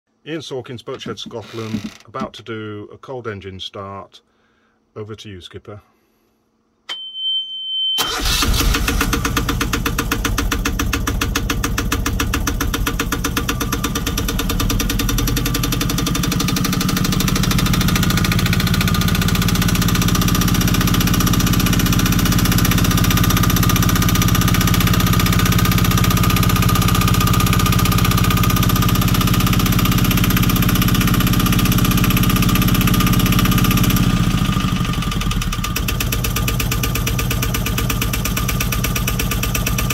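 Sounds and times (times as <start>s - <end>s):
high steady beep: 6.9s - 8.0s.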